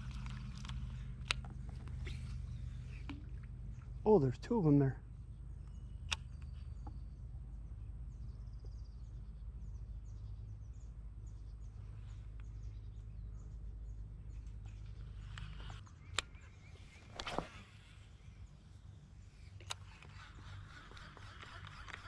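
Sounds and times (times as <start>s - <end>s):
low rumble of background noise: 0.0s - 22.0s
small birds chirping: 0.9s - 22.0s
brief rustle: 16.9s - 18.0s.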